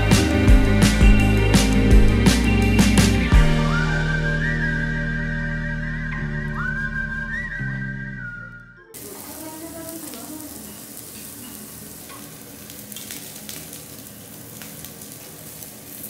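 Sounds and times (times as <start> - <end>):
food sizzling in a pan: 9.0 - 16.0.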